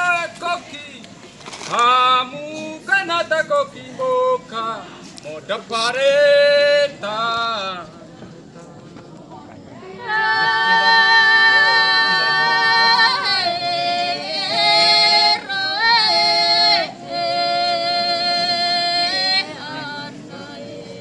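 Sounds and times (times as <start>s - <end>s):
voices singing long held notes: 10.0s - 21.0s.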